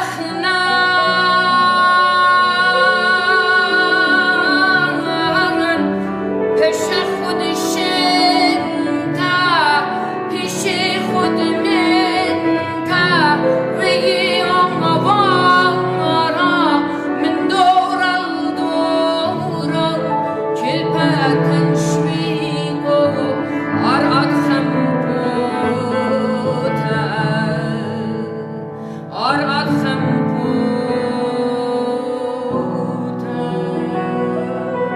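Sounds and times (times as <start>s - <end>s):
person singing: 0.0s - 34.9s.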